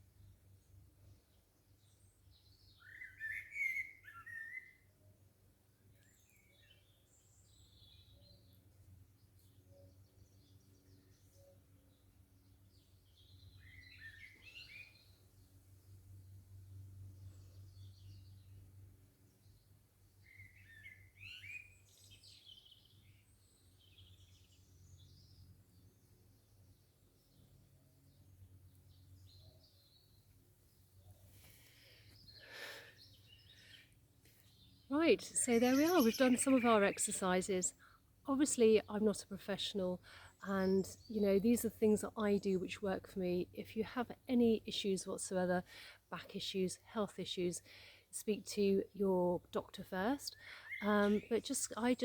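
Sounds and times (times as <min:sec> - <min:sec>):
songbird whistles and chirps: 0:02.4 - 0:04.9, 0:13.1 - 0:15.2, 0:20.2 - 0:25.4
songbird fluty warbling: 0:02.7 - 0:04.8, 0:20.2 - 0:22.9, 0:34.6 - 0:37.7, 0:50.2 - 0:52.0
low steady background hum: 0:22.6 - 0:52.0
high bird chirps: 0:35.4 - 0:36.9.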